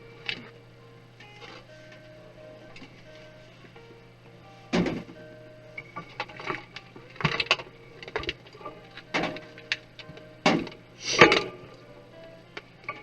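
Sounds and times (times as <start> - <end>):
pc case parts clicking and rattling: 4.4 - 11.8.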